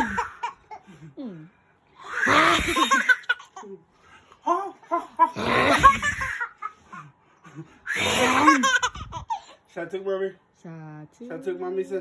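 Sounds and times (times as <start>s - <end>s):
young child laughing: 4.5s - 6.8s, 8.0s - 9.4s.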